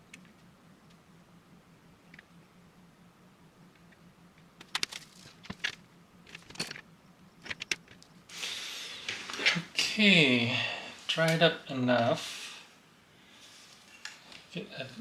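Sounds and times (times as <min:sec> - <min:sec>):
small objects clicking and tapping: 0:03.7 - 0:08.1.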